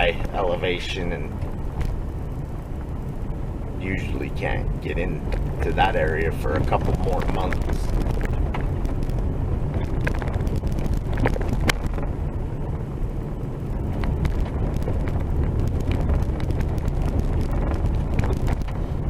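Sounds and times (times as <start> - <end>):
vehicle driving on dirt road: 0.0 - 19.0
knocks and rattles: 6.5 - 12.1.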